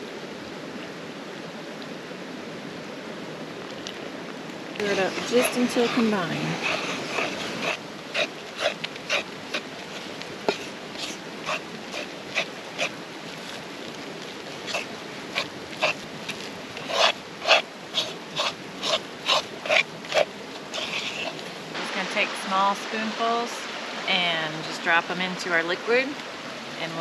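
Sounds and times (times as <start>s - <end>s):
spoon stirring thick batter: 4.8s - 21.6s.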